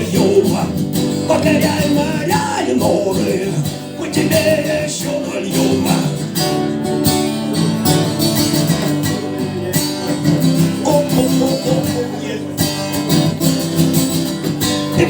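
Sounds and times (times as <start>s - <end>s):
person singing: 0.0s - 6.6s, 9.6s - 12.8s
acoustic guitar strumming chords: 0.0s - 15.0s.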